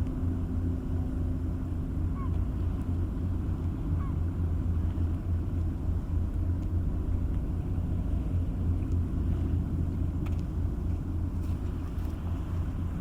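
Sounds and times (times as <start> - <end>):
faint ticks: 8.8 - 9.0.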